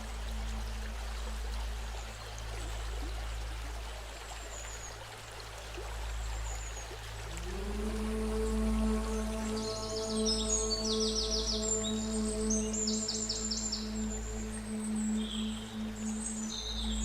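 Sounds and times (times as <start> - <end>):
low steady drone: 0.0 - 17.0
river water rushing: 0.0 - 17.0.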